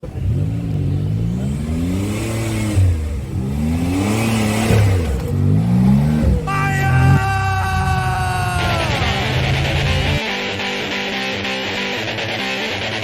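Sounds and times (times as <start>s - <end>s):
vehicle engine revving: 0.0s - 10.2s.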